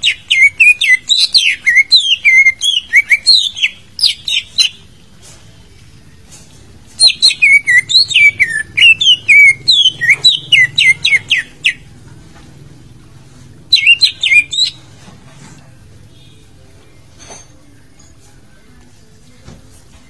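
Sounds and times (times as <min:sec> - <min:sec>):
bird singing whistled notes: 0:00.0 - 0:04.8, 0:07.0 - 0:11.9, 0:13.7 - 0:14.9.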